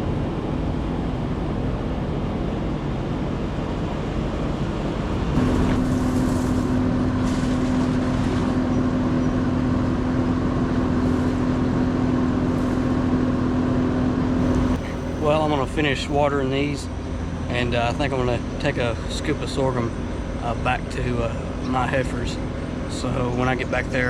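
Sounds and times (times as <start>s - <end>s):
steady hum: 0.0s - 7.8s, 14.4s - 23.2s
motor running: 14.4s - 16.2s
water hissing: 14.4s - 16.2s.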